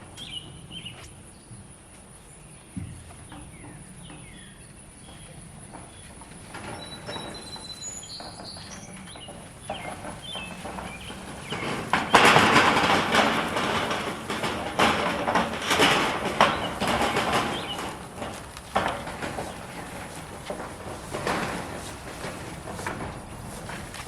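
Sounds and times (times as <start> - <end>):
rustling and scraping: 5.7 - 24.0.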